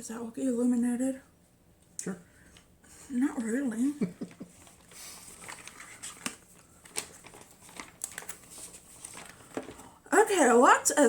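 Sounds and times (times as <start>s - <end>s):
packaging crinkling and rustling: 4.3s - 10.1s.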